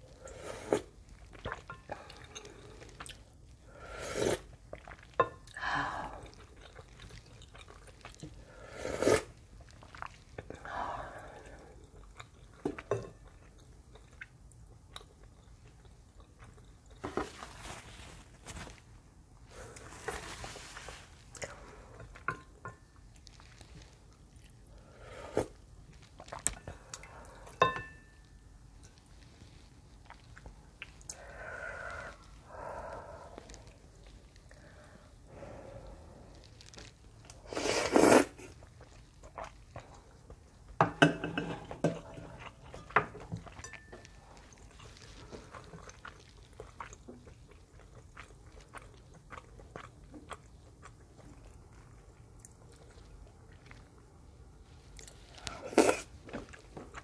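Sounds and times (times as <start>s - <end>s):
wet chewing: 6.2s - 8.4s, 9.5s - 10.6s, 42.4s - 57.0s
loud noodle slurps: 8.7s - 9.3s, 37.4s - 38.5s, 55.4s - 56.2s
slurping: 35.8s - 40.1s, 55.0s - 57.0s.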